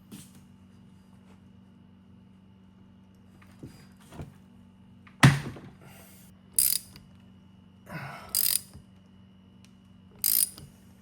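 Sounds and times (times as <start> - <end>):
ratchet clicking: 6.6 - 7.0, 8.3 - 8.8, 10.2 - 10.6.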